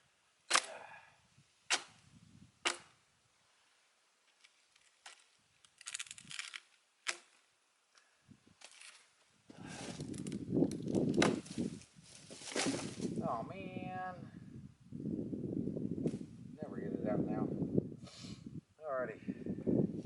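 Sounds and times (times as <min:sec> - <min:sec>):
blows splitting a log: 0:00.5 - 0:00.9, 0:01.7 - 0:02.0, 0:09.5 - 0:11.8.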